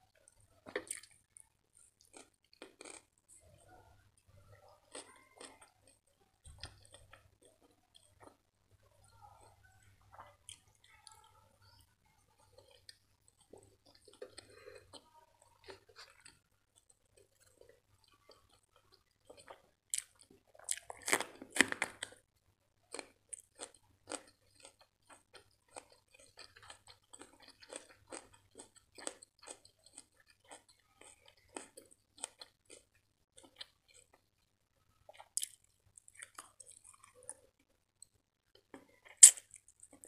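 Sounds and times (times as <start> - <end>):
chewing crunchy food: 0.1 - 3.4, 4.2 - 11.2, 11.8 - 40.0.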